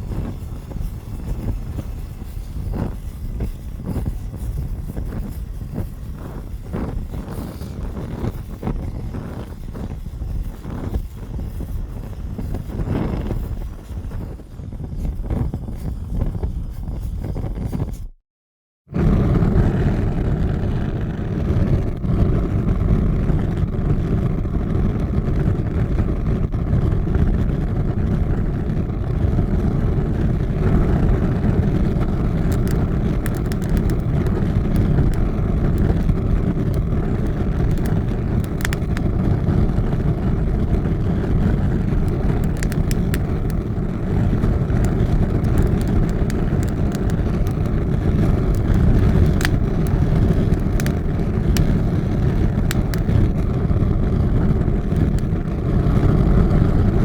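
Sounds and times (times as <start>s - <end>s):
large fire roaring: 0.0s - 14.4s, 18.9s - 57.0s
fire crackles: 0.0s - 18.1s, 18.9s - 57.0s.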